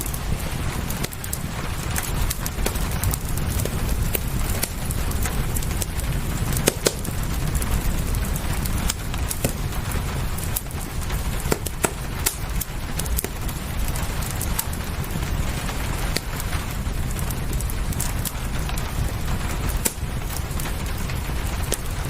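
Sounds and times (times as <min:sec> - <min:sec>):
low rumble: 0:00.0 - 0:22.0
rain hiss: 0:00.0 - 0:22.0
wood fire crackling and popping: 0:00.0 - 0:22.0.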